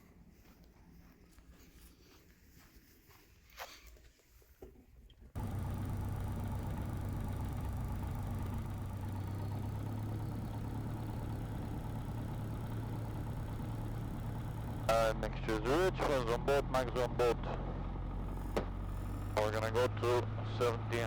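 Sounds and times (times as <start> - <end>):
aircraft piston engine idling: 5.4 - 21.0.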